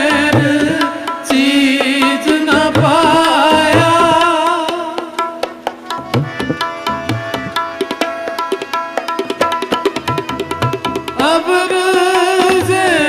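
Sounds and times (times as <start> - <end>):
person singing: 0.0 - 5.2, 11.2 - 13.0
harmonium: 0.0 - 13.0
tabla: 0.0 - 13.0.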